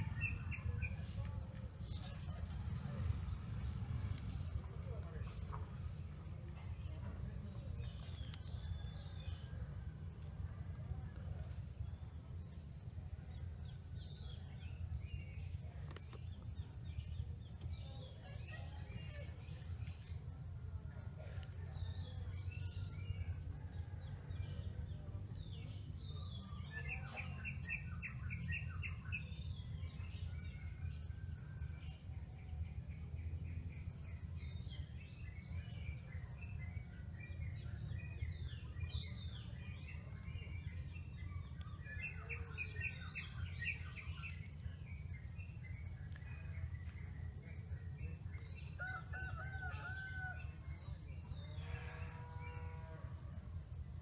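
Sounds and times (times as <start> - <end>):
steady low rumble: 0.0 - 23.8, 28.9 - 49.1
small birds chirping and trilling: 0.0 - 54.0.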